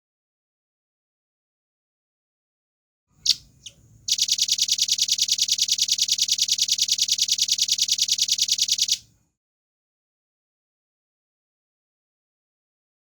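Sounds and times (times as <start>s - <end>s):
bird calling with fast trill: 3.2s - 9.1s.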